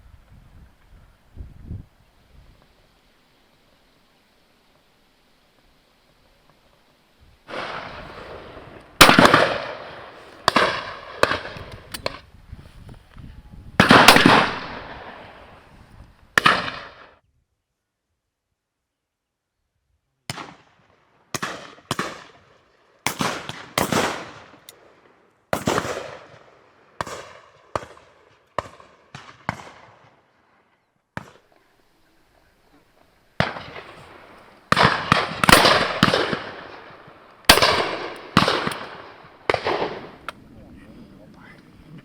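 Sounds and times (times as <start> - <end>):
shotgun shots: 7.5 - 12.2, 13.8 - 15.4, 16.4 - 17.0, 21.3 - 22.4, 23.1 - 24.7, 25.5 - 30.2, 33.4 - 40.3.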